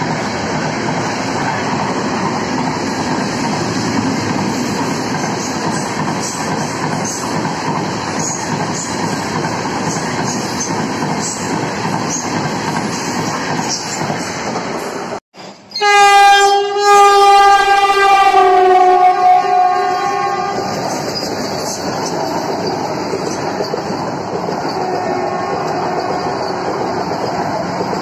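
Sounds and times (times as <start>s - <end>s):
train wheels rumbling on rail: 0.0s - 15.8s, 16.4s - 28.0s
train horn: 15.7s - 20.8s, 24.7s - 26.6s.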